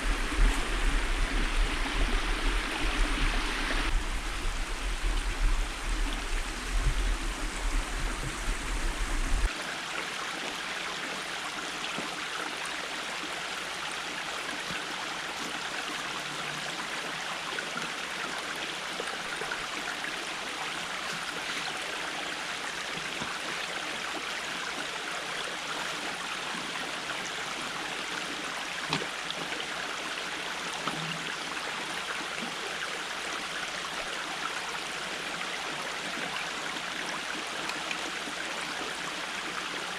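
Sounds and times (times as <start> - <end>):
low rumble: 0.0 - 9.5
creek water running over stones: 0.0 - 39.9.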